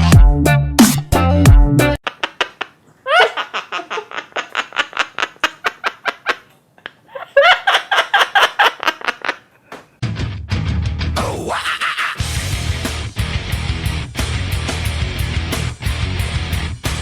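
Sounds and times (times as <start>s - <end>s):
parrot imitating laughter: 2.0s - 9.7s, 11.4s - 12.3s.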